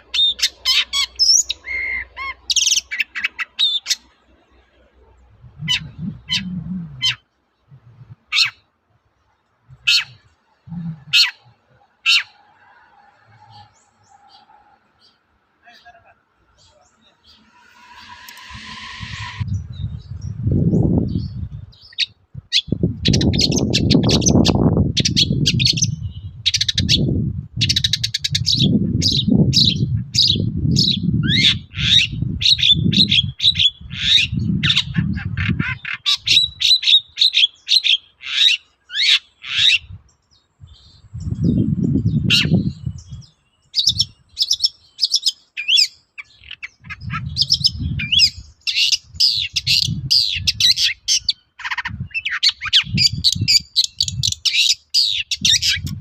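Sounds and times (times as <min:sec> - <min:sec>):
low rumbling noise: 0:05.2 - 0:07.1, 0:10.6 - 0:11.7, 0:17.0 - 0:21.8
bird singing chirps and trills: 0:05.2 - 0:12.4, 0:13.3 - 0:56.0.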